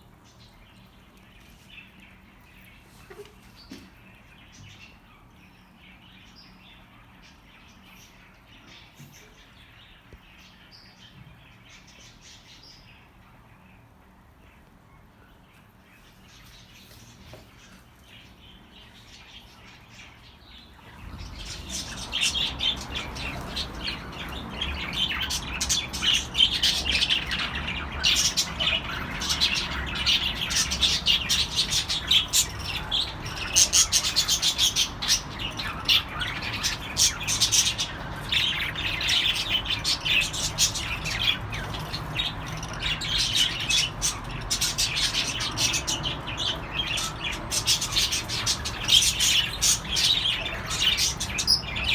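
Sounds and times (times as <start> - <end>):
budgerigars chirping: 17.6 - 51.9
birds squawking: 18.3 - 51.9.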